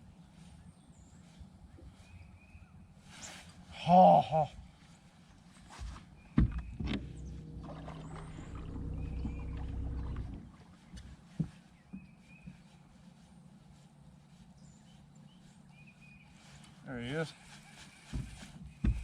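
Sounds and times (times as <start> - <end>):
low mechanical hum: 4.6 - 19.0
knocks on a boat: 6.4 - 10.5, 18.2 - 19.0.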